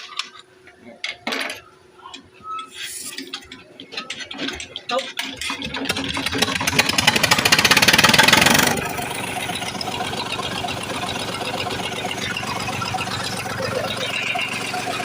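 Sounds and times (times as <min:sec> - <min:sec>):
diesel engine running: 0:05.9 - 0:15.0.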